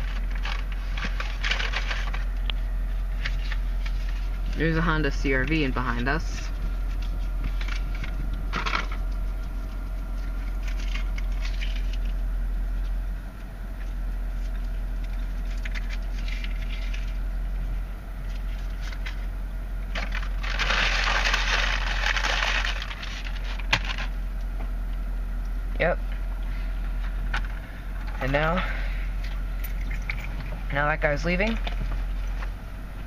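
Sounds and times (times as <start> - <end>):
rustling handling noises: 0.0 - 4.8
car engine idling: 0.0 - 33.0.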